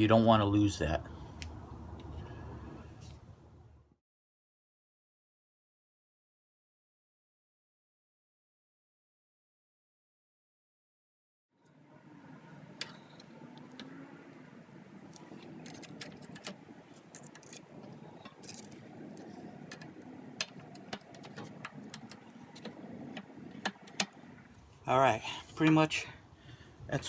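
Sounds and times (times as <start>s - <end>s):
low steady background noise: 0.0s - 4.0s, 11.6s - 27.0s
small metal parts clinking: 15.4s - 20.0s.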